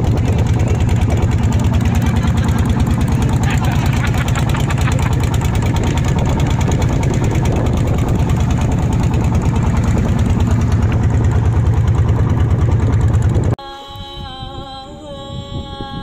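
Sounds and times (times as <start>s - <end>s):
boat engine running: 0.0s - 16.0s
music with singing: 13.6s - 16.0s.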